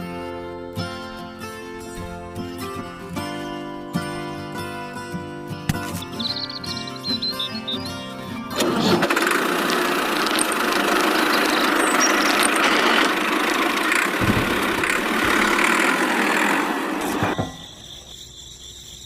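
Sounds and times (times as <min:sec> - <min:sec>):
small motor running: 0:08.5 - 0:17.4.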